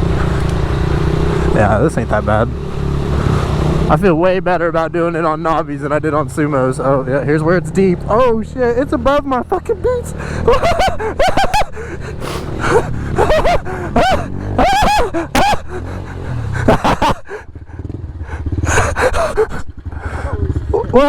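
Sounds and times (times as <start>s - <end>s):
small motorbike engine running: 0.0s - 4.1s, 5.4s - 21.0s
riders yelling: 5.0s - 17.4s, 18.4s - 21.0s.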